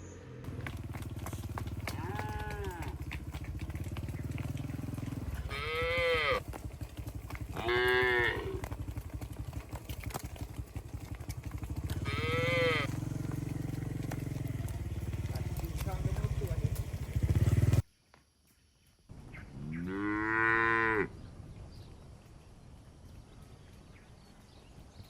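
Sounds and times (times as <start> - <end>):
cattle mooing: 1.8 - 3.2, 5.3 - 6.5, 7.5 - 8.8, 11.9 - 14.2, 19.7 - 21.1.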